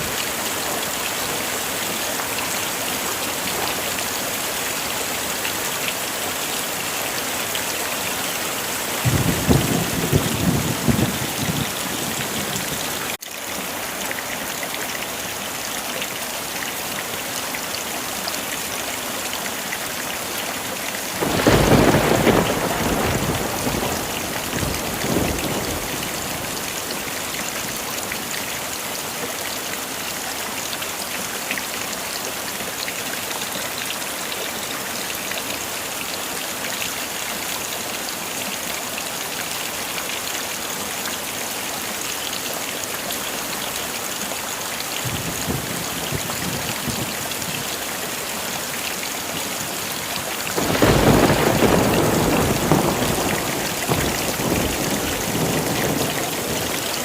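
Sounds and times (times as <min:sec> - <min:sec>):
heavy rain falling: 0:00.0 - 0:57.0
thunder rumbling: 0:09.0 - 0:12.9, 0:21.2 - 0:26.8, 0:50.6 - 0:56.8.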